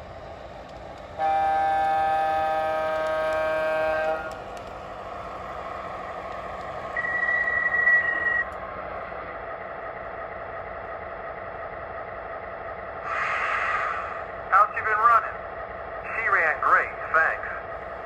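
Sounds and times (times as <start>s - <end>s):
high steady squeal: 6.9s - 8.5s.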